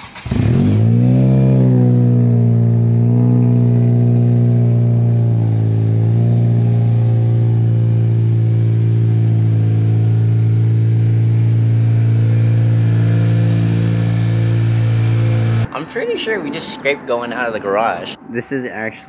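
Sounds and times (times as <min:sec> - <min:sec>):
car engine running steadily: 0:00.0 - 0:15.7.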